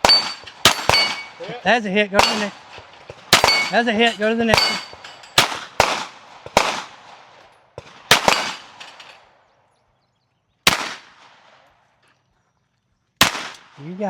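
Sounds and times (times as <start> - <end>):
pistol shots with echo: 0.0 - 1.5, 2.2 - 9.4, 10.6 - 11.7, 13.2 - 14.0.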